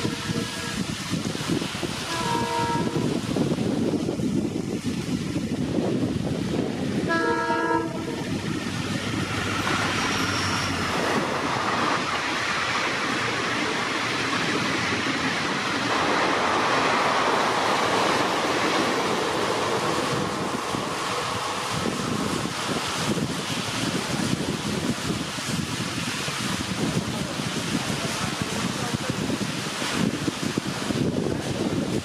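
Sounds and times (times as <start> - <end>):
train horn blast: 0.0 - 0.8, 2.1 - 3.1, 7.1 - 8.4
diesel locomotive passing: 0.0 - 32.0
heavy rain: 0.0 - 32.0
train coaches rolling past: 0.0 - 32.0.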